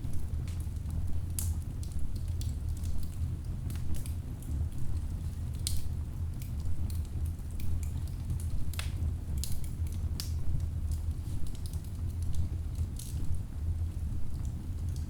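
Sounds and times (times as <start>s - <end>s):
low rumble of flame: 0.0s - 15.0s.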